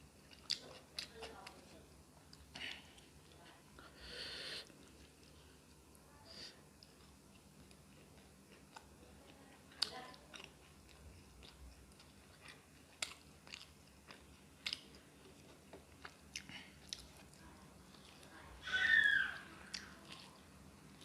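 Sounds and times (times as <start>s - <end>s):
person chewing food: 0.1s - 3.6s, 6.8s - 9.0s, 9.6s - 18.4s, 19.6s - 21.0s.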